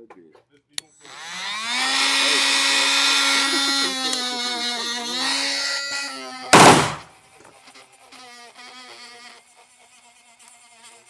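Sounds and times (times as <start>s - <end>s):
gunshot: 6.6s - 7.0s.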